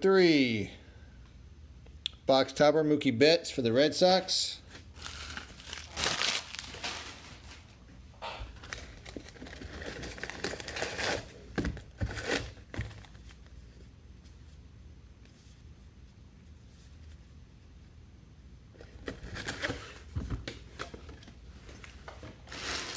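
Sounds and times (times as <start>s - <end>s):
card wrappers crinkling and tearing: 4.7s - 7.7s, 8.6s - 13.4s, 22.4s - 22.9s.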